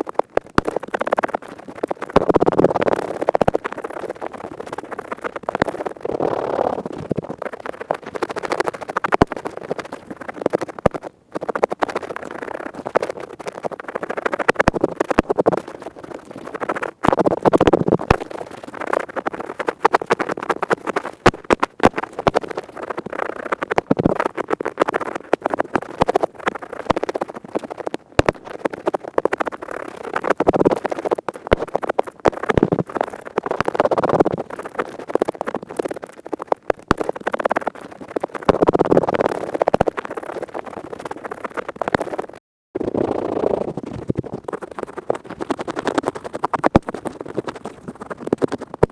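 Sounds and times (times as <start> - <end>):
earpick scraping microphone: 5.4 - 48.9.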